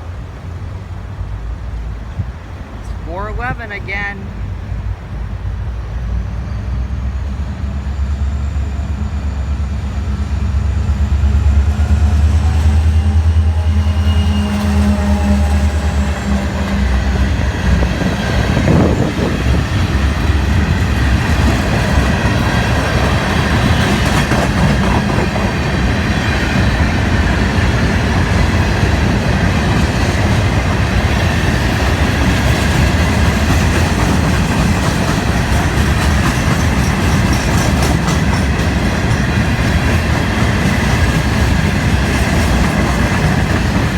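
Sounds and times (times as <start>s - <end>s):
diesel locomotive engine rumble: 0.0s - 43.9s
train wheels clattering on rails: 10.7s - 43.9s.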